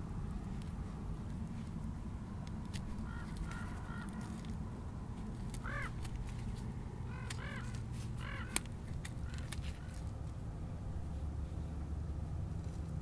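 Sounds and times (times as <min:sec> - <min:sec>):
bird calling: 0:02.9 - 0:04.5, 0:05.5 - 0:06.4, 0:07.0 - 0:10.0.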